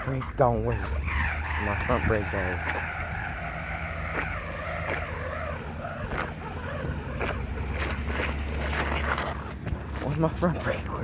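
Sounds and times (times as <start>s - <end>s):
sharp clicks and rattles: 4.1s - 10.8s.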